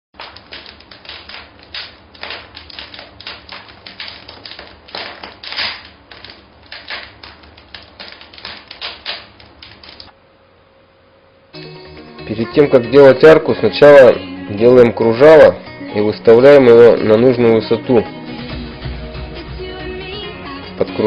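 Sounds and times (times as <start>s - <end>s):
typewriter keys clattering: 0.2s - 10.1s.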